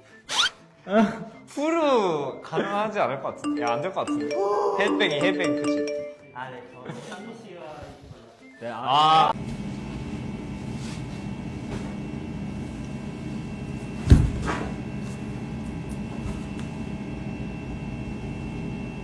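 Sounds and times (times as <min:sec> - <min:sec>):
steady background hum: 0:09.4 - 0:19.0.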